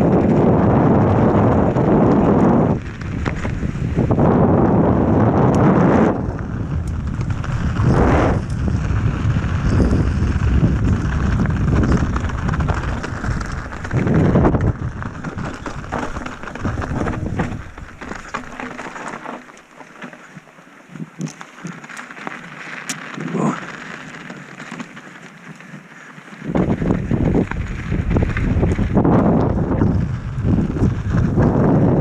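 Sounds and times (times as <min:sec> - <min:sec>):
wind buffeting microphone: 0:00.0 - 0:19.1, 0:26.4 - 0:32.0
small ticks and rattles: 0:06.2 - 0:31.6.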